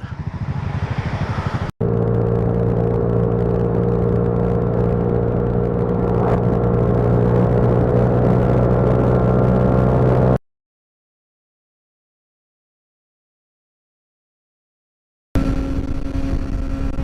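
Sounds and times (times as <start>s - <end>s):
motorcycle engine cruising: 0.0s - 10.4s, 15.4s - 17.0s.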